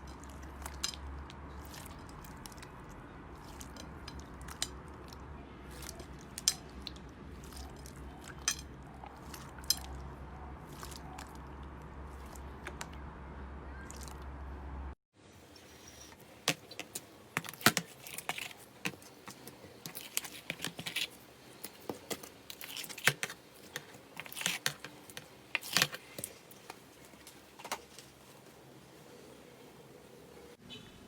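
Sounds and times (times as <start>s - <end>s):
slime clicking and crackling: 16.4s - 27.4s.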